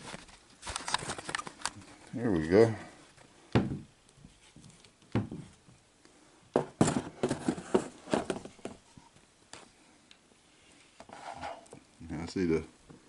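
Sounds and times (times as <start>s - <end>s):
handling knocks and scrapes: 6.6s - 9.1s, 11.0s - 11.8s.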